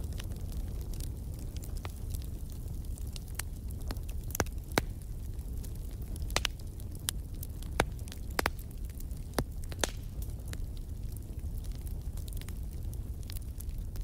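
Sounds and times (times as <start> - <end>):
fire crackling and popping: 0.0 - 14.0
fire flames rumbling: 0.0 - 14.0.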